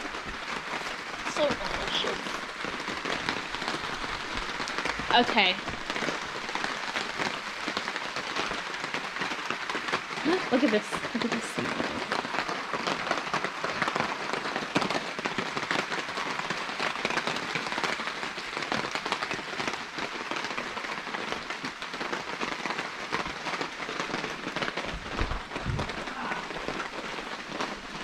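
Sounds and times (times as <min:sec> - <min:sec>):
rain pattering: 0:00.0 - 0:28.0
dull low thump: 0:24.9 - 0:26.1.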